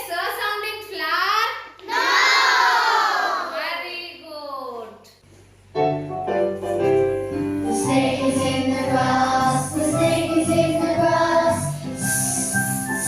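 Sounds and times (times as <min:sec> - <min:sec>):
backing music with steady beat: 0:05.8 - 0:13.0
children's song singing: 0:07.6 - 0:13.0.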